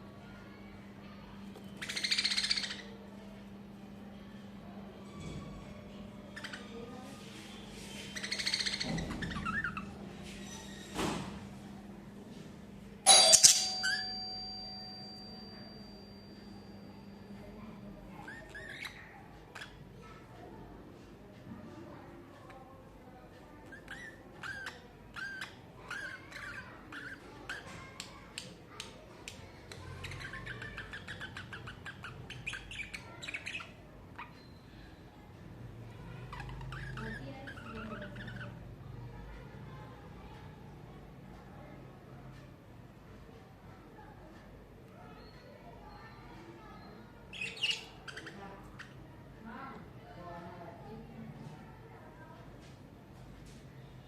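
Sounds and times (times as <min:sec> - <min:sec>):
budgerigars chattering: 0:01.8 - 0:02.9, 0:08.1 - 0:10.0, 0:29.9 - 0:34.5, 0:47.3 - 0:48.9
budgerigars chirping and chattering: 0:01.8 - 0:02.9, 0:07.8 - 0:10.0, 0:18.2 - 0:19.8, 0:23.6 - 0:27.7, 0:29.7 - 0:34.6, 0:36.2 - 0:38.6, 0:46.6 - 0:49.0.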